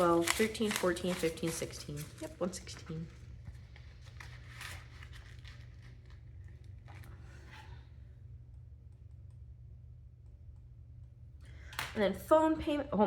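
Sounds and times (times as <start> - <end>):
paper money rustling: 0.0 - 7.5
low steady hum: 0.0 - 13.0.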